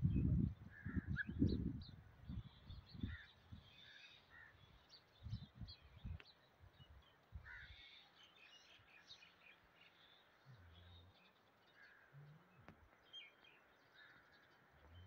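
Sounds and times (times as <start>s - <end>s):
faint bird calls: 2.4s - 4.9s, 7.3s - 15.0s.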